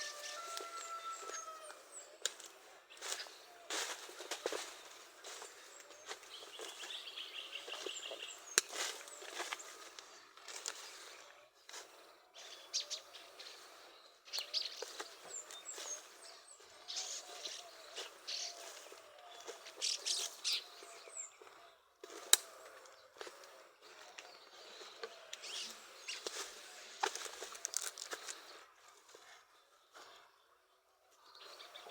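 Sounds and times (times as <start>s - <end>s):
small birds chirping: 0.0s - 31.9s
bird trill: 14.3s - 21.4s.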